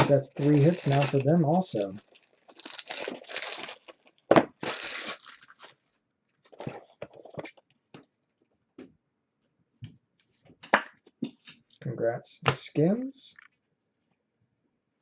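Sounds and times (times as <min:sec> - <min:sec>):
wrapper tearing open: 0:00.0 - 0:05.8.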